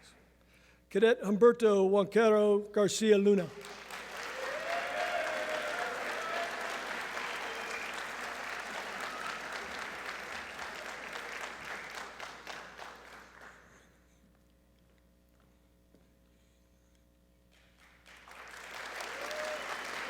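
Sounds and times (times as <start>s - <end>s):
audience applauding: 3.5s - 13.8s, 17.6s - 20.0s.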